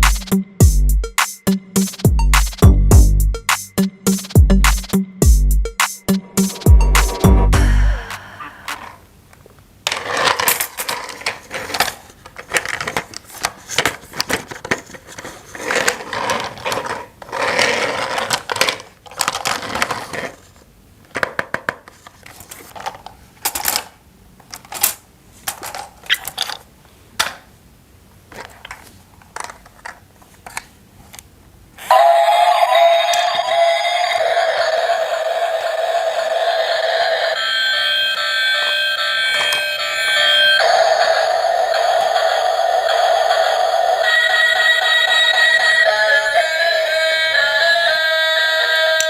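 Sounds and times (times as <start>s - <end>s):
plastic toy pieces clattering: 9.8s - 27.4s, 28.3s - 30.7s.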